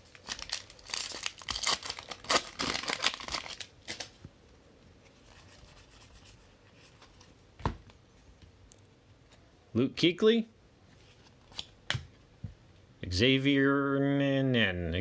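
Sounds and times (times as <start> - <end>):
wrapper tearing and crinkling: 0.0 - 4.2.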